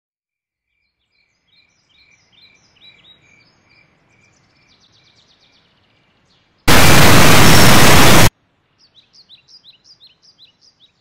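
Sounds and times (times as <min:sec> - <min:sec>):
faint bird chirps: 0:08.6 - 0:11.0.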